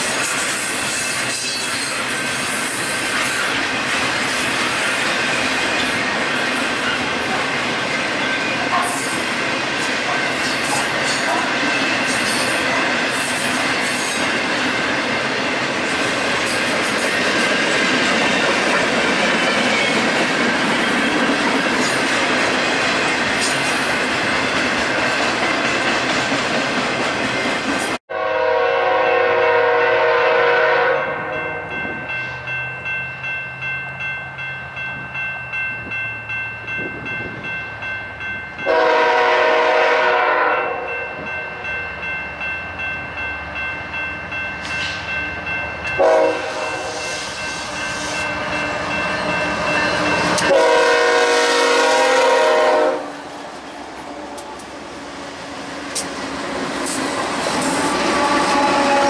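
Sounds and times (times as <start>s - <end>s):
freight train rushing past: 0.0s - 59.0s
locomotive air horn blasts: 28.1s - 31.5s, 38.6s - 40.9s, 46.0s - 48.9s, 50.0s - 53.2s, 58.1s - 59.0s.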